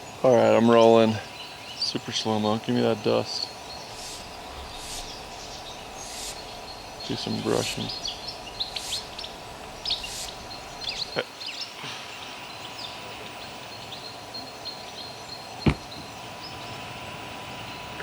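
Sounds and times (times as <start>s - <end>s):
outdoor background: 0.0s - 18.0s
sharp knock: 15.6s - 16.1s.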